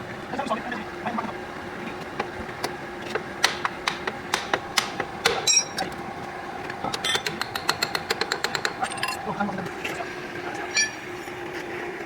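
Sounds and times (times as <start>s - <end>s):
hammer striking metal: 3.4s - 5.8s
metallic ring: 5.4s - 5.8s.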